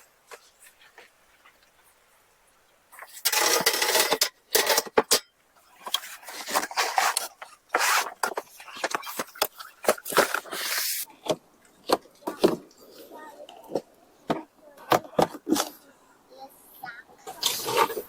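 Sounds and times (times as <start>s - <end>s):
dishes and utensils clattering: 3.0s - 5.3s.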